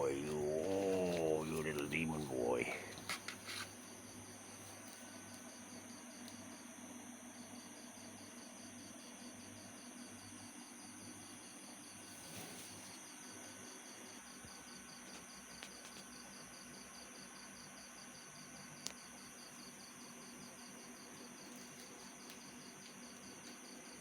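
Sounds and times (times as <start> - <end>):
steady high whine: 0.0 - 3.4
insect chirping trill: 0.0 - 12.0.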